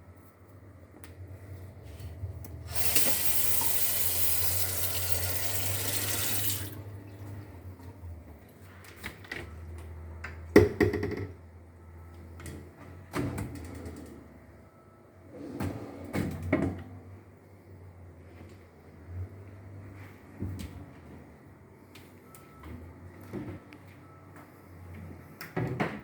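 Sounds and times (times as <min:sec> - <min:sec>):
tap running in a sink: 0:02.7 - 0:06.8.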